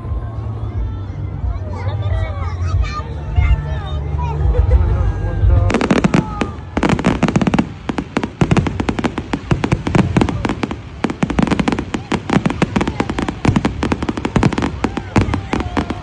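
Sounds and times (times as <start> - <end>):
fireworks bangs and crackles: 5.4 - 16.0.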